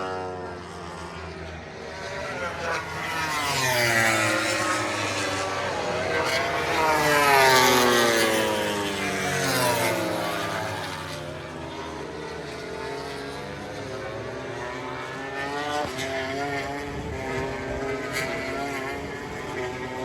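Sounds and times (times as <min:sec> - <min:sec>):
racing motorcycle engine passing: 0:00.0 - 0:20.0.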